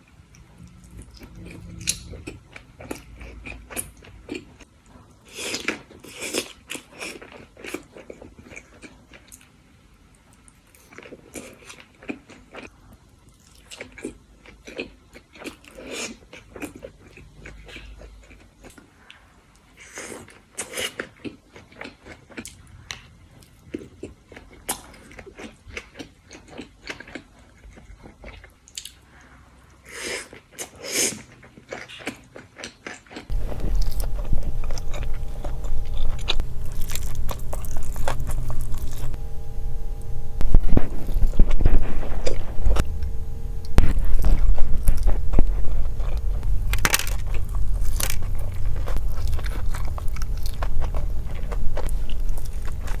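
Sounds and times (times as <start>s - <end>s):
steady low hum: 0.0s - 4.4s, 33.3s - 53.0s
chewing and crunching food: 0.0s - 53.0s.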